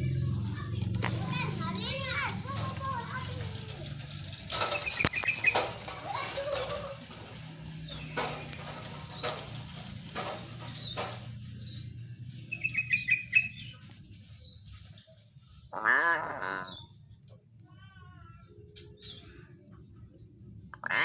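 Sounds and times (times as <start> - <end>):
myna bird calling: 4.6 - 6.7, 12.5 - 13.8, 15.7 - 17.0, 20.8 - 21.0.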